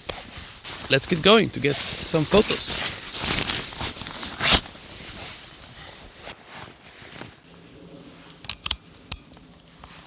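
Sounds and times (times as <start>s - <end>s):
footsteps: 0.0s - 7.4s
jacket rustling: 0.0s - 7.5s.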